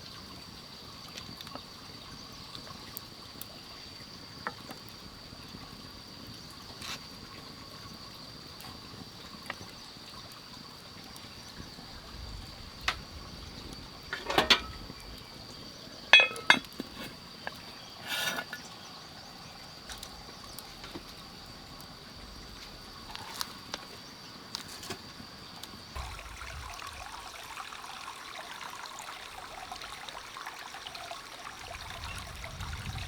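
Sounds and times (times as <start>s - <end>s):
hard objects clinking and knocking: 14.2s - 14.8s, 16.1s - 16.7s
water splash: 26.0s - 28.3s.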